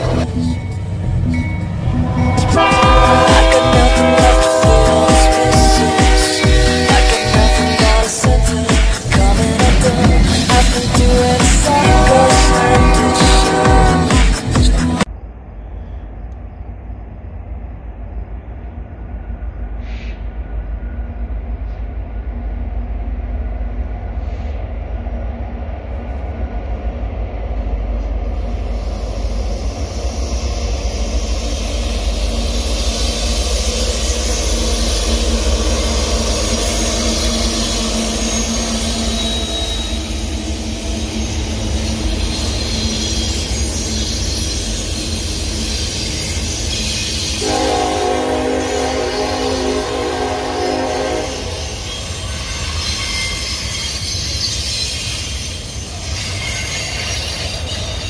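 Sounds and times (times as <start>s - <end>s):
freight train rumble: 0.0s - 58.0s
steel wheels on rail: 0.0s - 58.0s.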